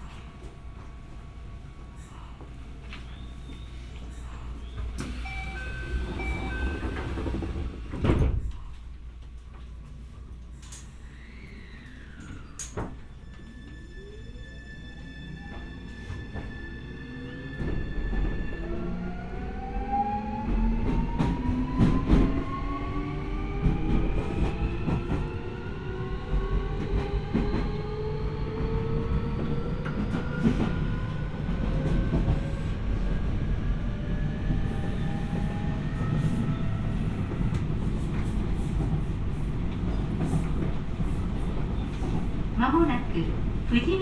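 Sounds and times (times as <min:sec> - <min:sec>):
wheels rumbling on rails: 0:05.0 - 0:08.5.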